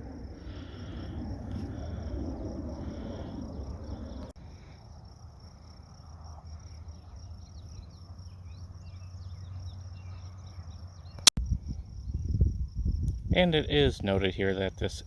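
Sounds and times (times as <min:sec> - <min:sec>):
low rumble: 0:00.0 - 0:04.4
crickets trilling: 0:00.0 - 0:15.0.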